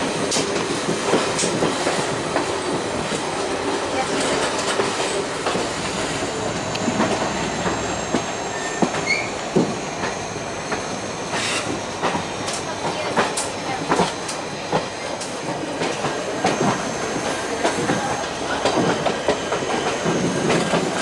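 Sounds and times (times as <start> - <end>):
train wheel and wind rush: 0.0 - 21.0
wheels clattering on rails: 0.0 - 21.0
wheels squealing: 7.3 - 9.4.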